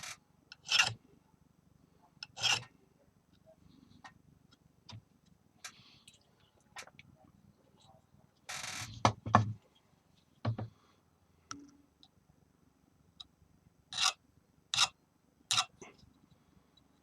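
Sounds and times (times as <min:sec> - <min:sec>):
file rasping on metal: 0:00.0 - 0:01.0, 0:02.2 - 0:02.7.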